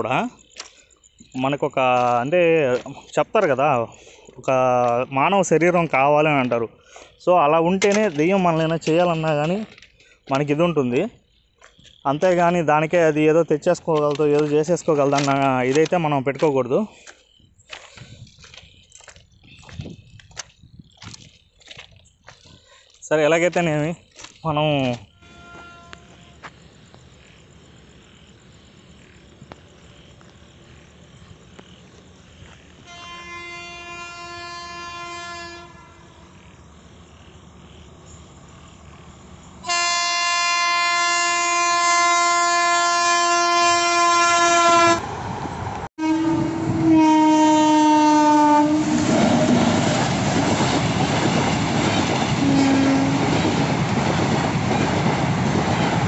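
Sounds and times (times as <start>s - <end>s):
locomotive horn blasts: 25.2s - 26.5s, 32.8s - 36.3s, 39.6s - 45.0s, 46.0s - 49.2s, 52.4s - 53.3s
train rushing past: 44.5s - 56.0s.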